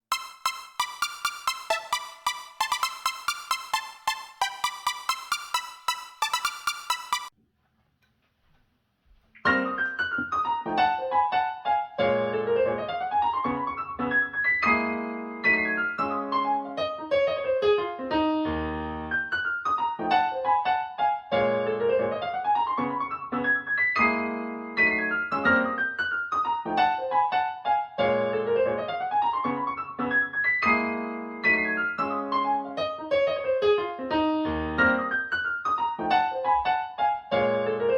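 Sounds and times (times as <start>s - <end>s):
music with bright repeated notes: 0.0s - 7.3s
piano piece over loudspeakers: 0.0s - 7.3s, 9.5s - 37.9s.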